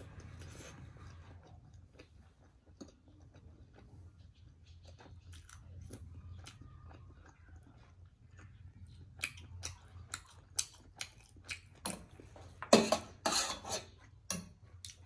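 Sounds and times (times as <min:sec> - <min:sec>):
wet chewing and mouth smacks: 0:01.0 - 0:12.1.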